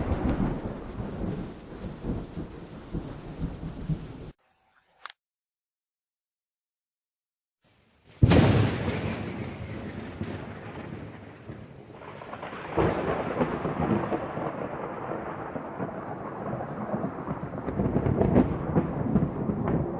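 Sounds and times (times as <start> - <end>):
thunder rumbling: 0.0 - 4.4, 8.1 - 19.9.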